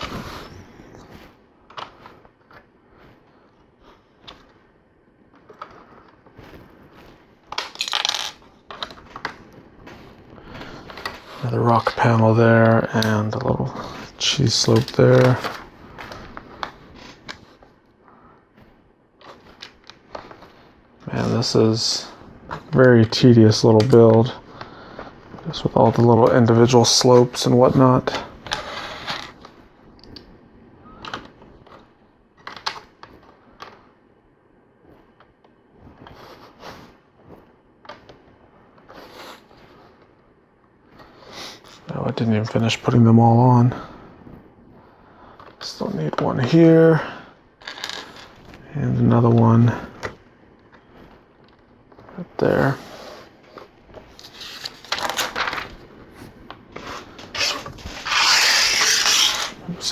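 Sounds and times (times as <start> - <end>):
plastic pieces scraping and rattling: 7.5 - 17.4, 47.6 - 48.4, 53.5 - 55.8, 56.7 - 59.9.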